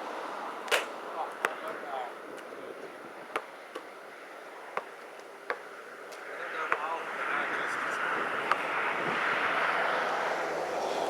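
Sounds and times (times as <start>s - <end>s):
wind noise: 1.0s - 3.6s, 7.0s - 11.0s.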